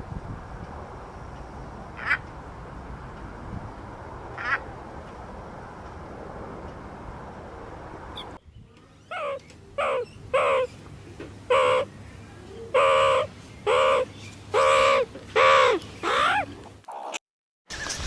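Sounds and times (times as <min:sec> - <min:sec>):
animal calling: 0:09.1 - 0:10.8, 0:11.5 - 0:11.9, 0:12.7 - 0:17.1.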